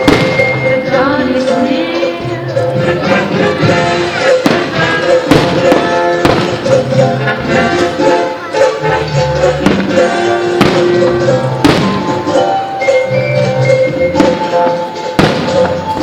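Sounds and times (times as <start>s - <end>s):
fireworks bangs: 0.0s - 1.0s, 3.1s - 8.7s, 9.5s - 12.8s, 14.0s - 16.0s
loud music: 0.0s - 16.0s.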